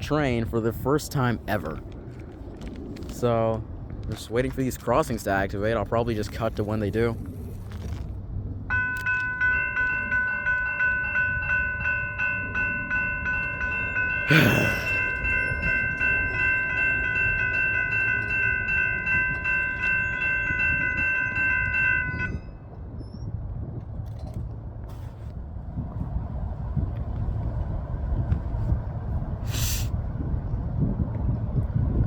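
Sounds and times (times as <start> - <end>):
low rumble: 0.0 - 32.0
level crossing bell clanging: 8.7 - 22.5.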